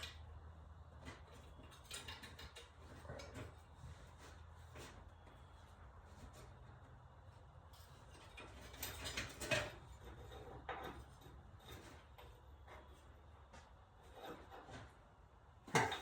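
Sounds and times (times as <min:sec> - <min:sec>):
hand tools scraping metal: 0:14.0 - 0:14.9.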